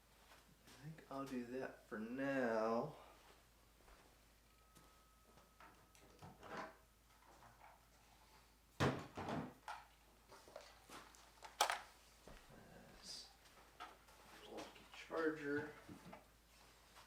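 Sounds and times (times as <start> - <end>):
tools clattering into toolbox: 11.6 - 11.8.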